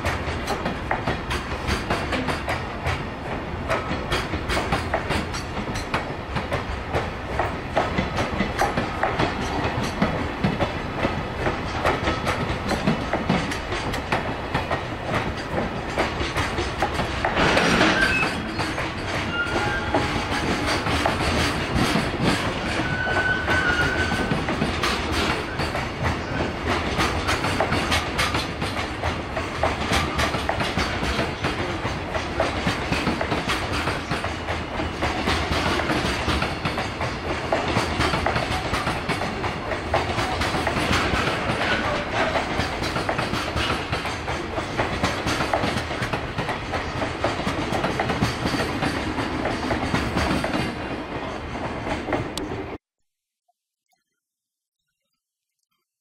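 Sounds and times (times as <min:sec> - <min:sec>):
train wheels clattering: 0:00.0 - 0:52.8
high wheel squeal: 0:17.8 - 0:20.5, 0:22.7 - 0:24.4.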